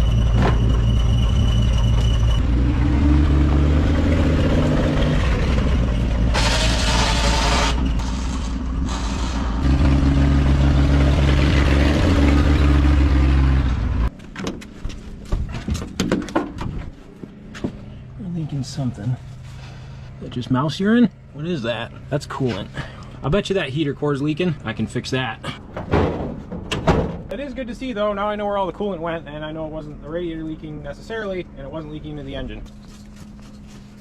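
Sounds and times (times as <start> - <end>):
car engine running: 0.0 - 14.1.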